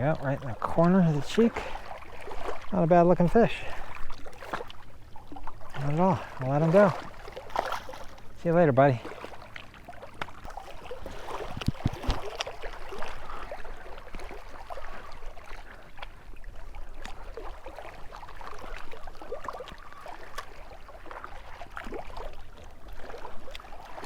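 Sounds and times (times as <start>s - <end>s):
small waves lapping and splashing: 0.0s - 24.0s
wind rumble on microphone: 11.1s - 13.0s.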